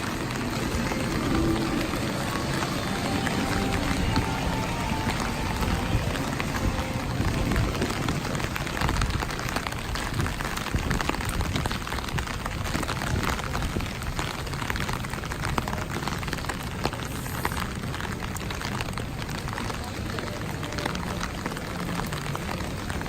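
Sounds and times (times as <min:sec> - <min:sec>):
steady rainfall: 0:00.0 - 0:23.0.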